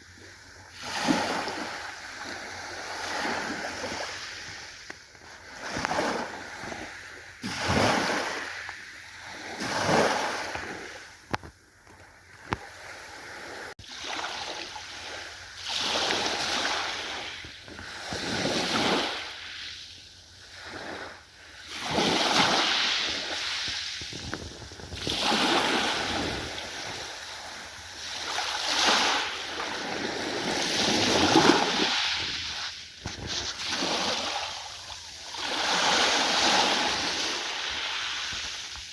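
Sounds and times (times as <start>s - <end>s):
ocean waves washing ashore: 0.0s - 11.3s, 12.3s - 38.9s.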